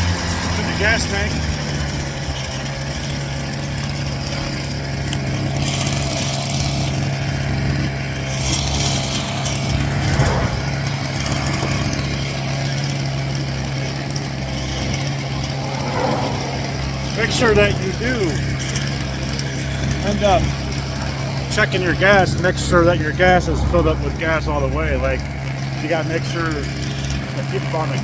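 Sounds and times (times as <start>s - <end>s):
two-stroke scooter engine running: 0.0s - 10.2s, 18.0s - 28.0s.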